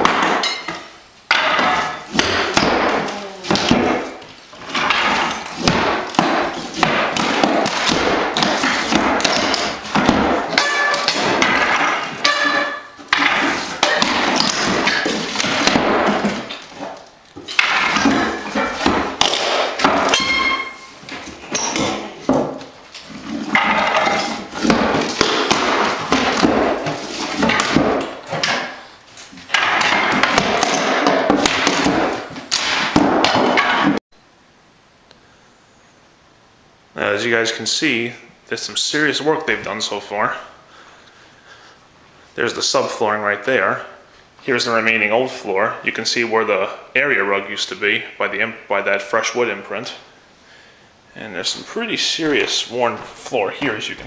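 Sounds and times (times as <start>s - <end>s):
hammering on wood: 0.0s - 0.6s, 1.3s - 4.1s, 4.7s - 16.4s, 17.6s - 20.8s, 23.5s - 28.7s, 29.5s - 34.0s
floorboards being ripped up: 1.4s - 34.0s.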